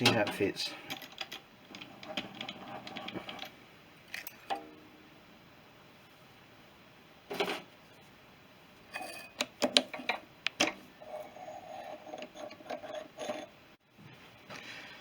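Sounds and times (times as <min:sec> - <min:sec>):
metal scraping and rattling: 0:00.0 - 0:04.6, 0:08.9 - 0:13.6.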